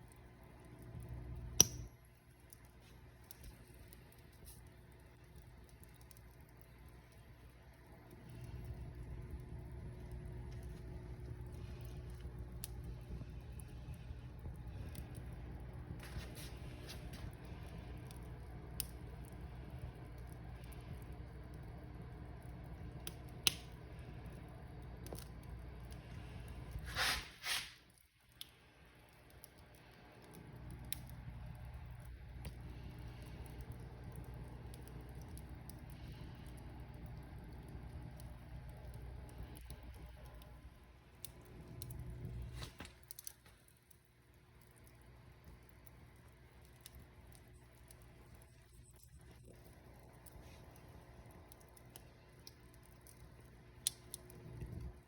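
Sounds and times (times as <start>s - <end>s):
low rumble of flames: 0.0s - 55.0s
wood fire crackling: 0.0s - 55.0s
sharp pops of fire: 1.1s - 2.6s, 23.0s - 23.8s, 50.1s - 54.4s
brief hissing bursts: 26.9s - 27.8s.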